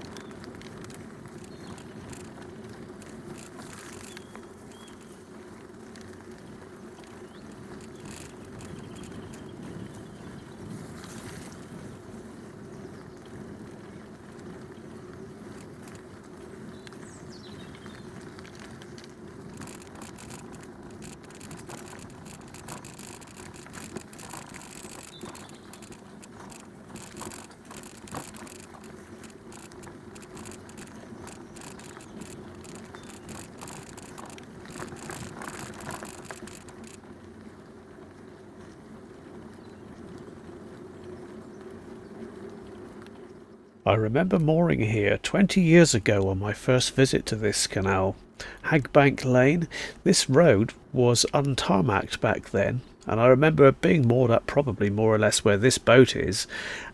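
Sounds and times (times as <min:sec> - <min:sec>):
bicycle clicks and rattles: 0:00.0 - 0:43.8, 0:52.8 - 0:53.2
bicycle tyre and riding noise: 0:00.0 - 0:56.9.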